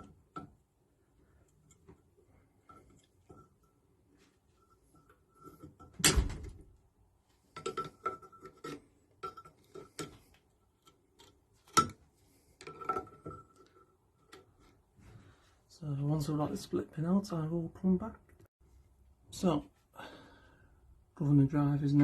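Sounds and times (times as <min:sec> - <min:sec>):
metal tools clinking and knocking: 0:07.5 - 0:10.3.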